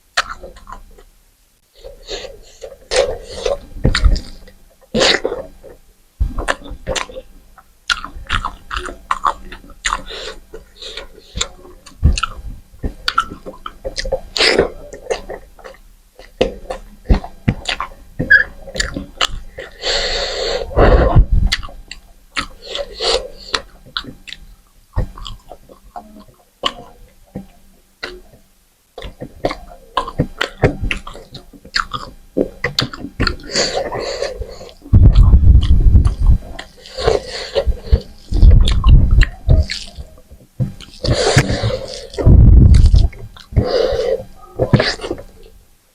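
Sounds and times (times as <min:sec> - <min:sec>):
person chewing food: 0:00.2 - 0:01.1, 0:01.7 - 0:45.6
loud low thumps and rumbles: 0:21.0 - 0:21.6, 0:34.9 - 0:36.6, 0:37.7 - 0:39.8, 0:42.2 - 0:43.4
wet mouth clicks: 0:29.0 - 0:40.2, 0:40.8 - 0:45.6.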